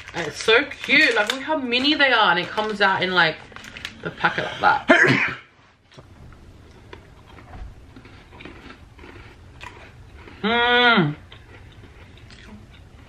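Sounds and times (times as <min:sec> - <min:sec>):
cookie crunching: 0:00.0 - 0:04.4, 0:06.7 - 0:13.0
person humming mmm: 0:10.4 - 0:11.2.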